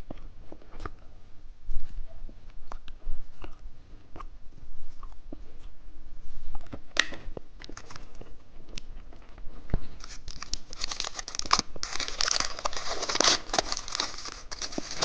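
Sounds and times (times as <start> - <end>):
plastic wrapper crinkling: 10.0 - 15.0.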